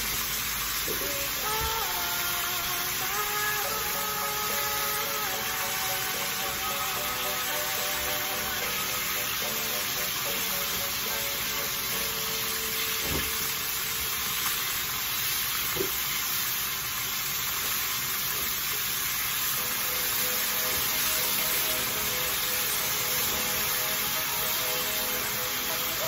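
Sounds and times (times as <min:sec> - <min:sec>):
liver sizzling in oil: 0:00.0 - 0:26.0.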